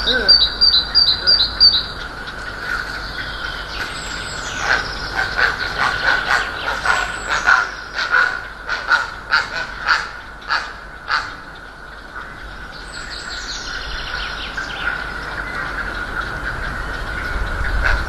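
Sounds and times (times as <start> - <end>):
birds giving short harsh calls: 0.0 - 11.5.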